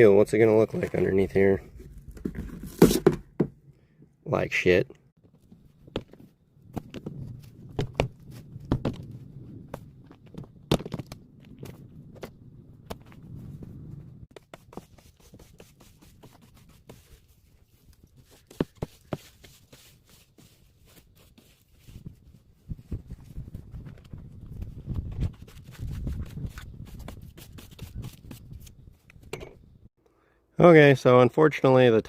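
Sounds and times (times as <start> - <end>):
knocks and scrapes of handwork: 1.8 - 3.6, 14.3 - 23.2.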